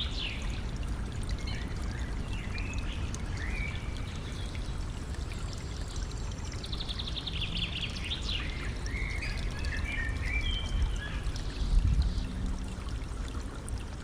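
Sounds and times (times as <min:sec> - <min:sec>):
stream trickling: 0:00.0 - 0:14.0
songbird singing: 0:06.5 - 0:12.4.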